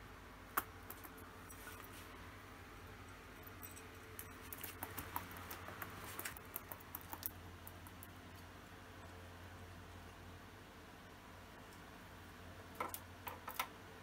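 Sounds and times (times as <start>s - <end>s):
low steady hum: 0.0s - 14.0s
bird clicking and tapping on table: 4.2s - 8.0s.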